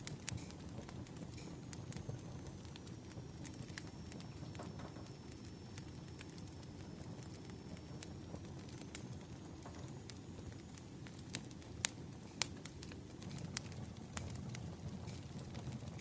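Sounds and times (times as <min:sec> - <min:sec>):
firewood crackling: 0:00.0 - 0:16.0
low fire rumble: 0:00.0 - 0:16.0
sharp pops and snaps: 0:11.1 - 0:16.0.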